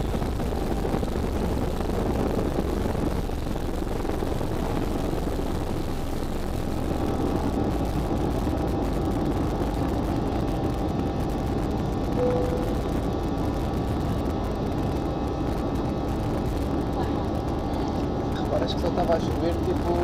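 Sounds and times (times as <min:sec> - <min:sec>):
faint steady engine tones: 0:00.0 - 0:20.0
jet engine and airflow noise: 0:00.0 - 0:20.0
brief single tone: 0:12.2 - 0:12.9.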